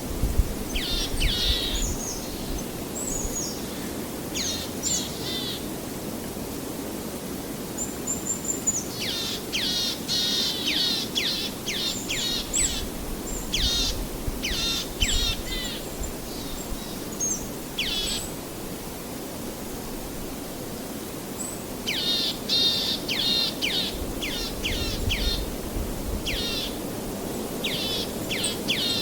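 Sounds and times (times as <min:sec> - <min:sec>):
birds calling: 0:09.0 - 0:18.4, 0:21.9 - 0:25.6, 0:26.2 - 0:29.0.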